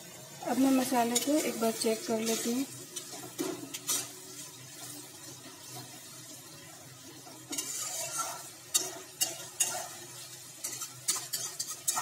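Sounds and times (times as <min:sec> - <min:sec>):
masala paste sizzling in oil: 0:00.0 - 0:12.0
metal spatula scraping pan: 0:00.8 - 0:05.0, 0:07.2 - 0:12.0
spatula tapping pan: 0:07.3 - 0:12.0.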